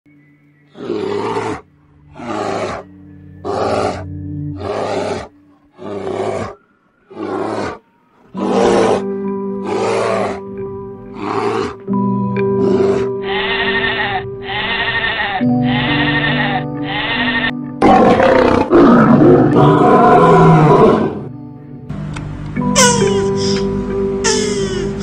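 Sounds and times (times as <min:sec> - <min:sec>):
background music: 0:00.1 - 0:25.0
bear roaring: 0:00.7 - 0:10.5, 0:11.1 - 0:16.4, 0:17.2 - 0:21.3.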